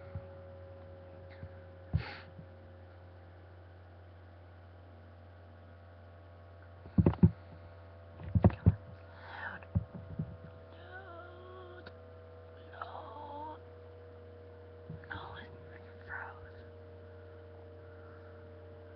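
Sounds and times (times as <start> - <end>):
electrical hum: 0.0 - 18.9
faint voice: 10.7 - 11.9, 12.6 - 13.6.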